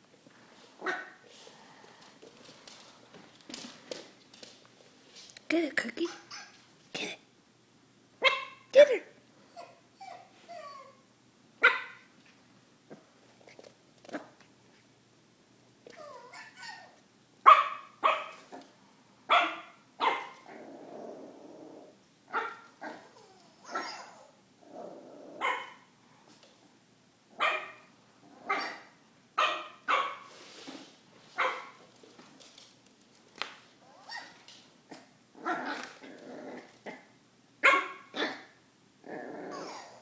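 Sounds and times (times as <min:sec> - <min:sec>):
puppy yapping: 0:06.1 - 0:06.6, 0:22.3 - 0:24.3, 0:27.4 - 0:30.2, 0:37.6 - 0:38.5.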